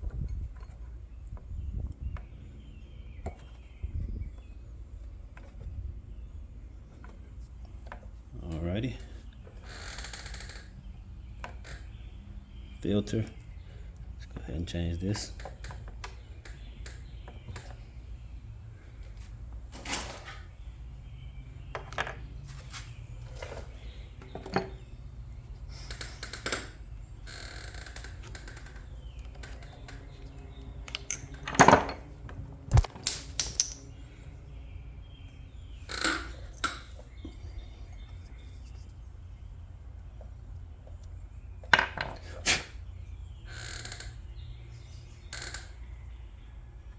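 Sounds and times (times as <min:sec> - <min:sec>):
small hard parts clicking: 0:32.7 - 0:33.8.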